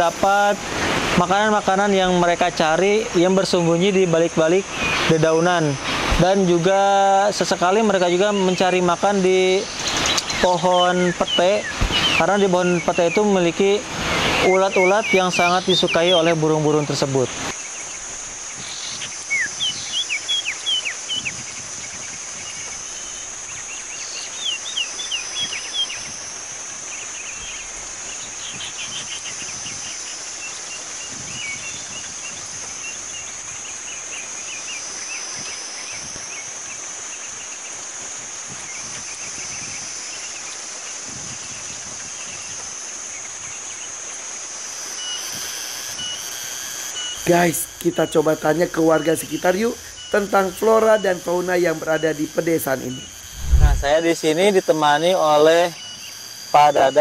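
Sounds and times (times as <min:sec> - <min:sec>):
high-pitched insect drone: 0:00.0 - 0:57.0
small bird chirping: 0:09.6 - 0:13.2, 0:17.6 - 0:37.9.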